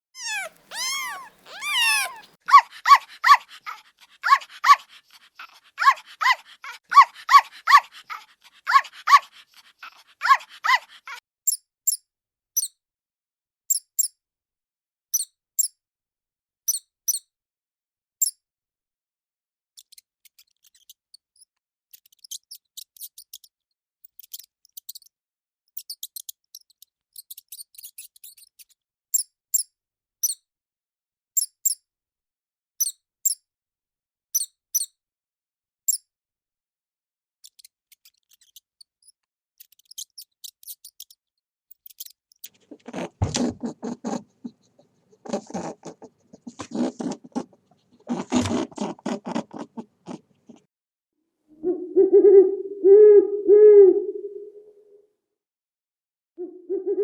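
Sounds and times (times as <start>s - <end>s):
high thin squeaks and chirps: 0.1s - 10.8s, 19.8s - 23.5s, 25.8s - 30.4s, 37.4s - 43.7s
dog-like barks and yelps: 0.2s - 11.2s.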